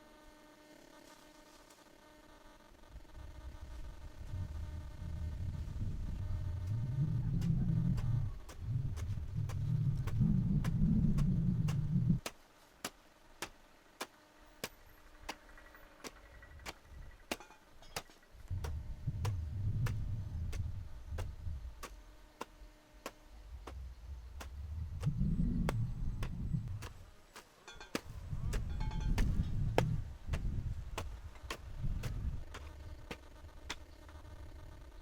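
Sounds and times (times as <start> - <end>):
low rumble: 4.2 - 12.2, 18.4 - 27.1.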